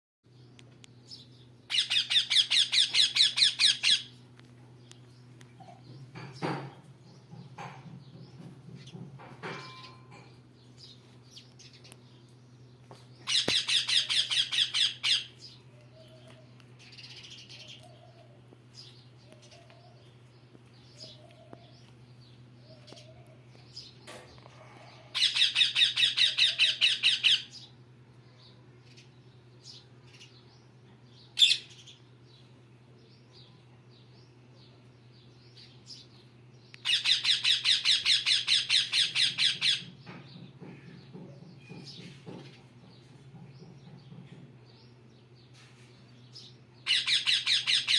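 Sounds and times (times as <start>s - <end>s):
parrot calling: 1.7s - 4.1s, 13.3s - 15.4s, 25.1s - 27.5s, 36.8s - 39.9s, 46.8s - 47.9s.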